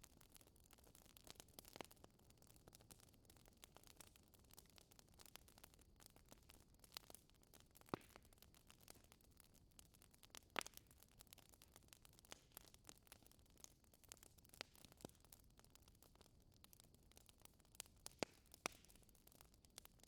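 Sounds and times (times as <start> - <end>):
fire crackling: 0.1 - 20.0.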